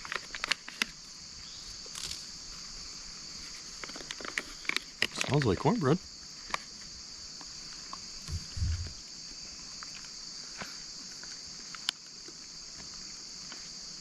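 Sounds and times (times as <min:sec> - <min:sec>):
high-pitched insect chorus: 0:00.0 - 0:14.0
soft low thump: 0:08.3 - 0:09.0.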